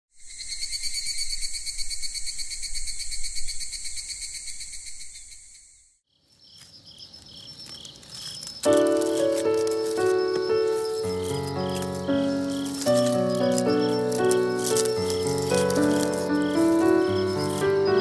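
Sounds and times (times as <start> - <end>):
crickets chirring: 0.2 - 18.0.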